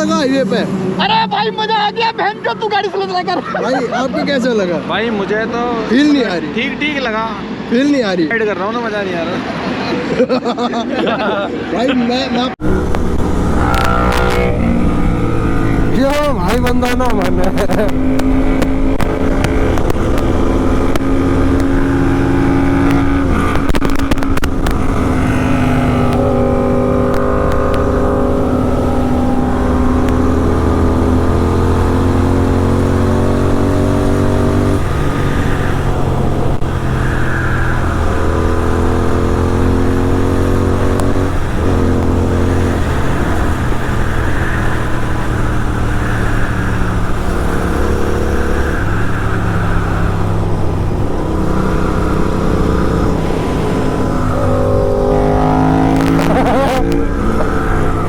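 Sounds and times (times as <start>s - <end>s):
motorcycle engine accelerating and shifting: 0.0s - 7.4s, 12.5s - 58.0s.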